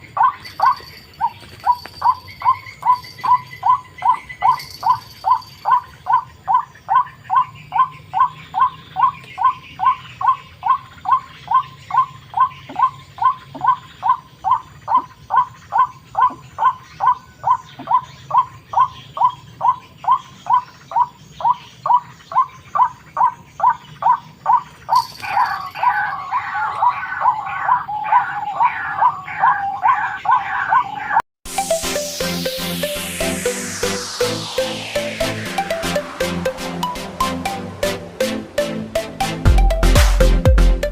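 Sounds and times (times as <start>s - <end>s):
waterhen calling: 0.0s - 31.2s.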